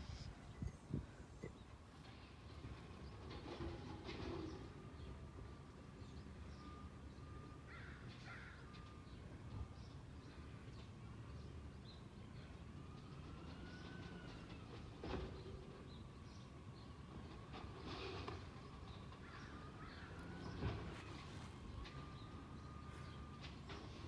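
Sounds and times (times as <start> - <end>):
birds calling: 0.0 - 1.8.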